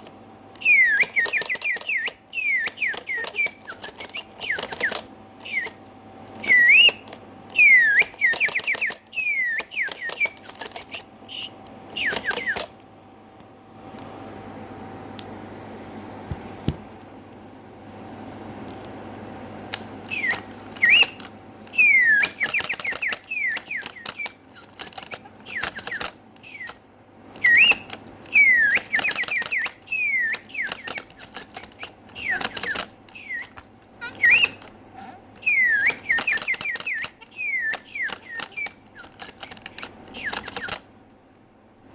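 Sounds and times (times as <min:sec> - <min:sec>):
gear mechanism clattering: 0:00.0 - 0:12.8, 0:19.7 - 0:26.8, 0:27.4 - 0:34.8, 0:35.4 - 0:41.0
whistled bird chirps: 0:00.6 - 0:12.7, 0:20.0 - 0:26.8, 0:27.4 - 0:34.7, 0:35.4 - 0:40.8.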